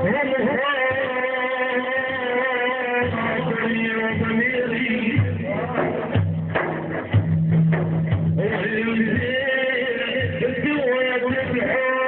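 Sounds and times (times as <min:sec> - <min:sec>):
man chanting: 0:00.0 - 0:06.3, 0:08.4 - 0:12.0
hand drum beats: 0:03.0 - 0:10.7.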